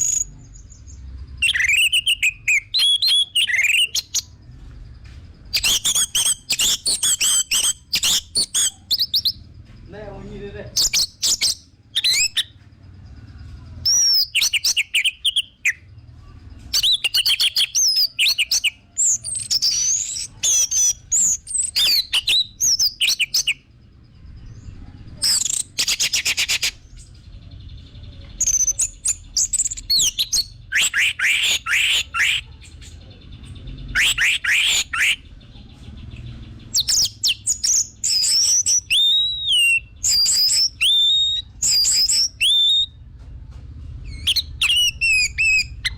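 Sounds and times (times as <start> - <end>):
bird whistling and trilling: 0.0 - 4.4, 5.5 - 9.4, 10.7 - 12.6, 13.8 - 15.9, 16.7 - 23.7, 24.5 - 27.1, 28.4 - 32.6, 33.8 - 35.3, 36.7 - 43.0, 44.0 - 45.9.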